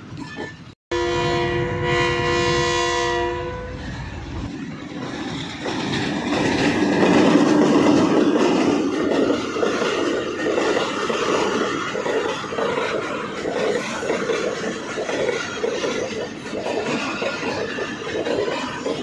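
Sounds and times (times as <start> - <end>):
locomotive horn chord: 0.9 - 4.0
train clattering rumble: 3.7 - 19.0.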